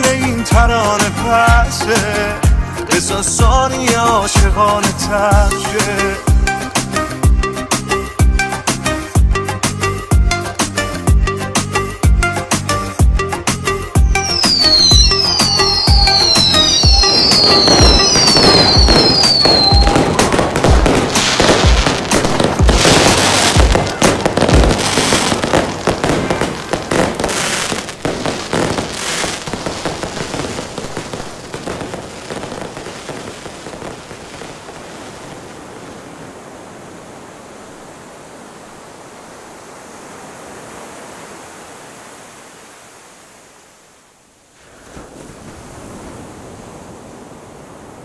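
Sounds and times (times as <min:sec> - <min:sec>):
fireworks crackling and popping: 0:14.0 - 0:36.3
steady rushing noise: 0:15.4 - 0:43.6.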